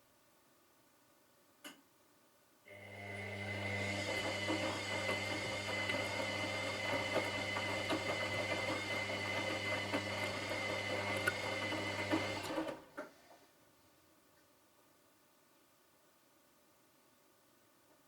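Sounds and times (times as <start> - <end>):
washing machine motor humming: 2.7 - 12.9.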